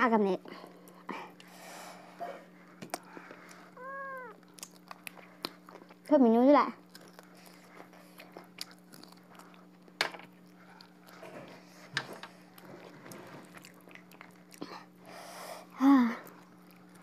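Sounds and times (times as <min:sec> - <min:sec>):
person chewing food: 0:02.7 - 0:06.1, 0:06.8 - 0:11.7, 0:12.4 - 0:15.0, 0:16.2 - 0:17.0.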